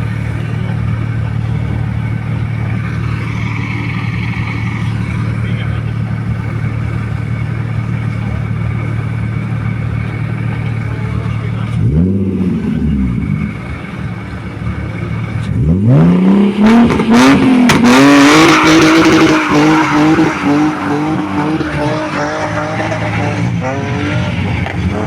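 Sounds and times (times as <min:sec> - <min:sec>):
rally car engine accelerating: 0:00.0 - 0:25.0
tyres spinning and squealing: 0:16.8 - 0:25.0.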